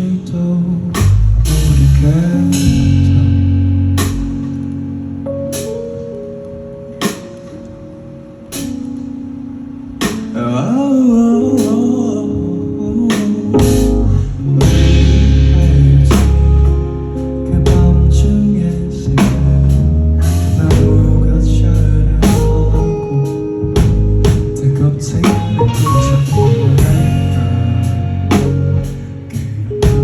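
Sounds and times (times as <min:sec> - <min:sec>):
bass guitar: 0:00.0 - 0:06.1, 0:13.6 - 0:30.0
drums: 0:00.0 - 0:06.1, 0:06.9 - 0:07.7, 0:08.4 - 0:09.3, 0:09.9 - 0:30.0
guitar: 0:08.3 - 0:30.0.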